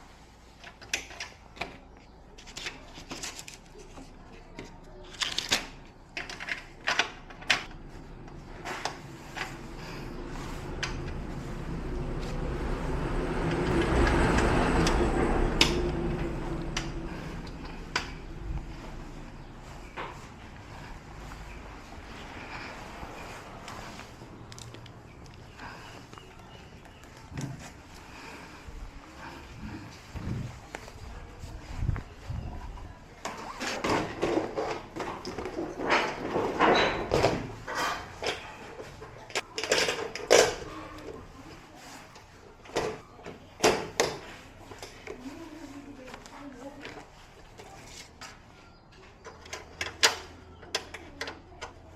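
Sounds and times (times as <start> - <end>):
objects being handled: 0.3 - 51.9
vehicle passing: 7.8 - 31.8.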